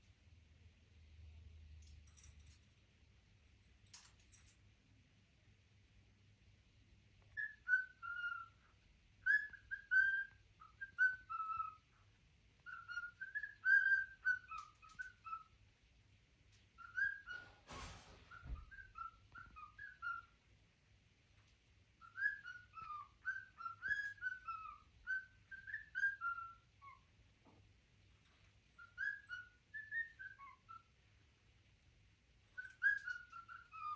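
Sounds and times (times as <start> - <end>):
pet bird whistling: 7.4 - 8.6, 9.2 - 11.9, 12.6 - 15.6, 16.8 - 17.5, 18.3 - 20.4, 22.0 - 27.0, 28.8 - 31.0, 32.5 - 33.9
rustling noise: 17.3 - 18.8.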